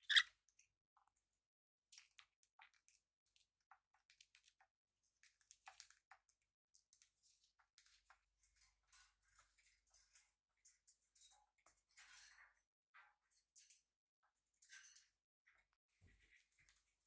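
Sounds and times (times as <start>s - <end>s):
birds' beaks crackling and clicking: 0.0s - 0.3s.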